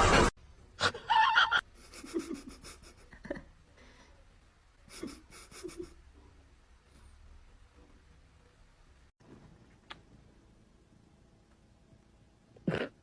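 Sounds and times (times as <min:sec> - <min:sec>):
quick rhythmic breathing: 0:04.9 - 0:05.9.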